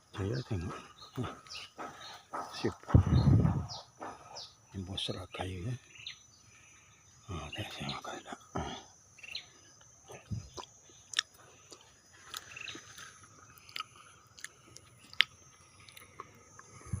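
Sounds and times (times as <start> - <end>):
fruit crunching: 9.8 - 17.0
soft mouth sounds: 10.1 - 12.6.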